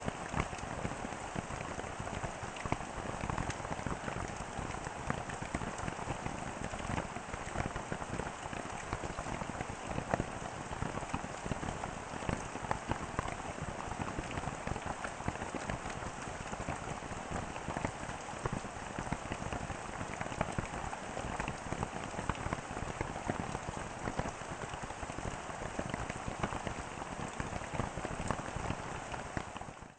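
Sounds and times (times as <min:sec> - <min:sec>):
steady rain falling: 0:00.0 - 0:29.9.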